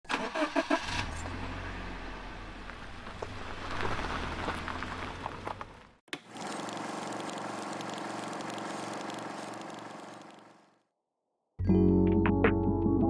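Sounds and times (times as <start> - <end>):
car engine humming: 0.1 - 10.8
road noise: 0.1 - 10.8.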